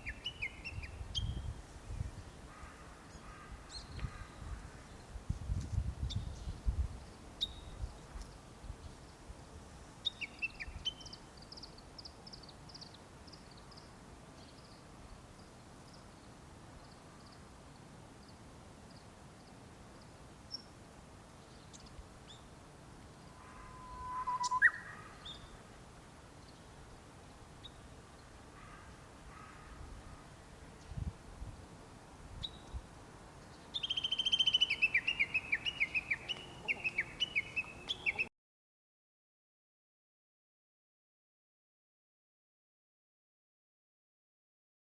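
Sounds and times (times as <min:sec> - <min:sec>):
birds chirping: 0:23.2 - 0:25.6, 0:33.6 - 0:38.3
bird call with rising note: 0:23.3 - 0:25.4.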